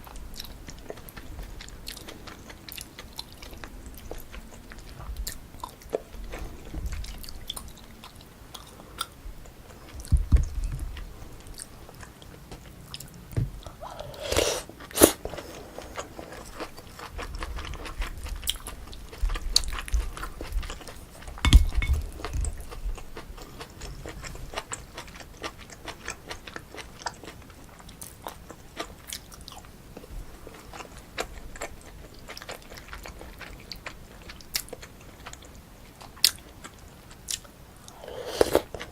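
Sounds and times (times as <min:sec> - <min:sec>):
chewing with wet mouth clicks: 0:00.0 - 0:13.7, 0:14.8 - 0:38.9
sharp eating sounds: 0:12.9 - 0:29.7.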